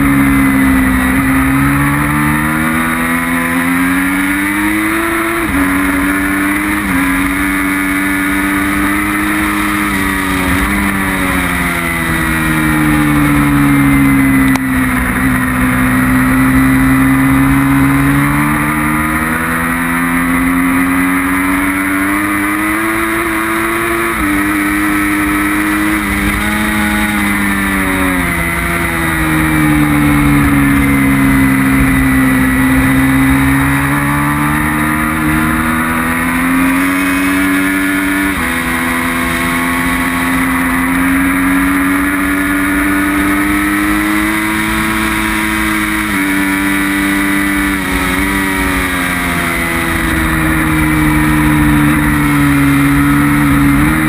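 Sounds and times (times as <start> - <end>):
rush of wind: 0.0 - 19.8
motorcycle engine revving: 0.0 - 54.0
road noise: 0.0 - 54.0.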